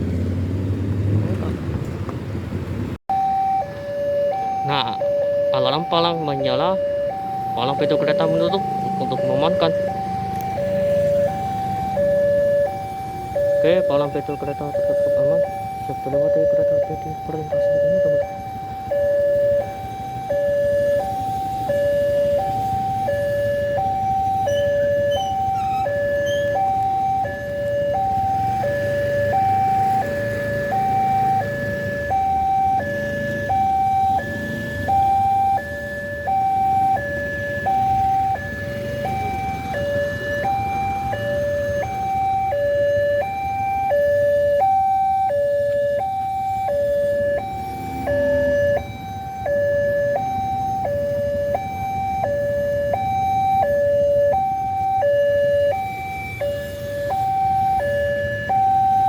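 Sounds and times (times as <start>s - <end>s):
level crossing two-tone alarm: 3.1s - 59.0s.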